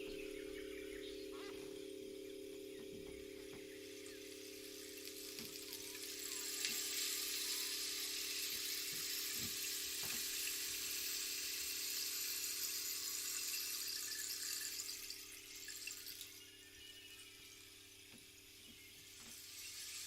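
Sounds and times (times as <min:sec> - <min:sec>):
faint steady hum: 0:00.0 - 0:20.0
rain-like rushing hiss: 0:03.7 - 0:16.1.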